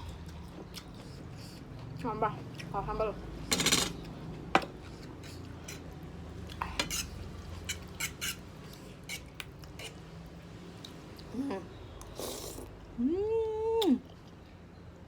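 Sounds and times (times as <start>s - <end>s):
utensils clicking against a bowl: 3.5s - 4.1s.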